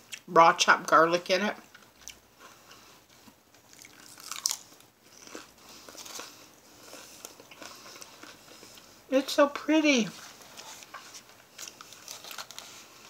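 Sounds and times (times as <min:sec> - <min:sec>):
person chewing crunchy salad: 0:01.6 - 0:09.1, 0:10.2 - 0:13.0.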